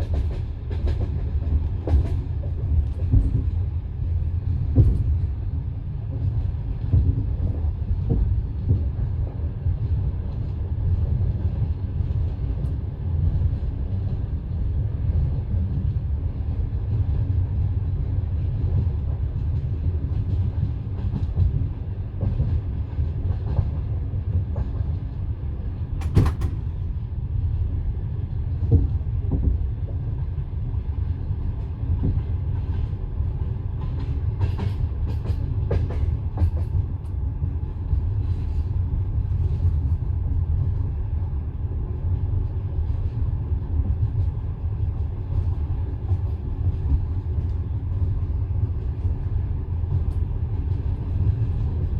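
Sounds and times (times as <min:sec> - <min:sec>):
train wheels clattering on rails: 0:00.0 - 0:05.4, 0:06.0 - 0:27.0, 0:28.3 - 0:40.8.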